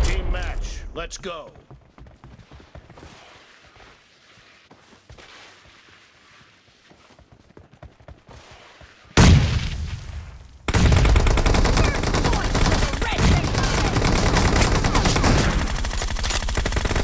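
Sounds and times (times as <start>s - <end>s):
automatic gunfire: 10.7s - 17.0s.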